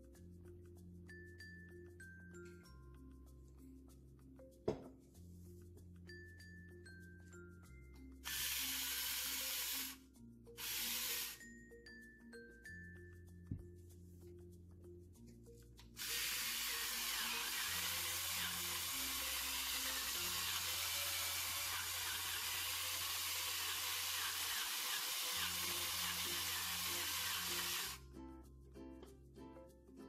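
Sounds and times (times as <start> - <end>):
electric pepper grinder hissing: 8.2 - 10.0, 10.6 - 11.4, 16.0 - 28.0.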